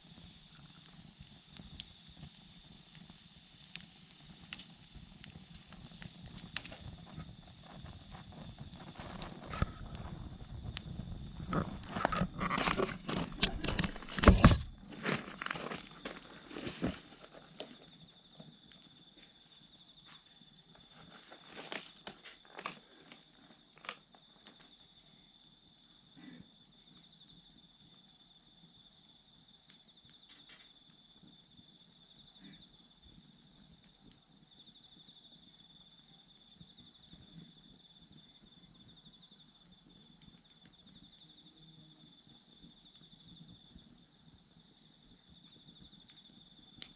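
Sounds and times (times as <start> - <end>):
crackling campfire: 0.0 - 46.9
insects trilling: 0.0 - 46.9
wood knocks and cracks: 11.4 - 17.1.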